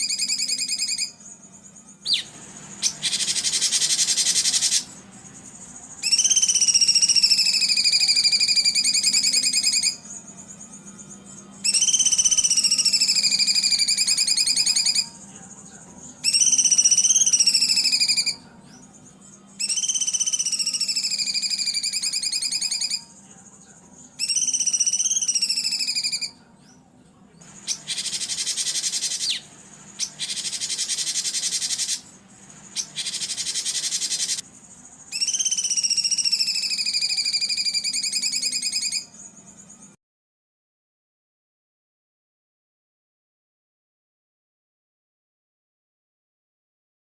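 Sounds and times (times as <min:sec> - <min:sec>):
buzzy wavering bird calls: 0:00.0 - 0:15.3, 0:16.1 - 0:23.2, 0:24.1 - 0:26.4, 0:27.5 - 0:39.8
harsh rattling bird calls: 0:00.0 - 0:26.4, 0:27.4 - 0:40.0.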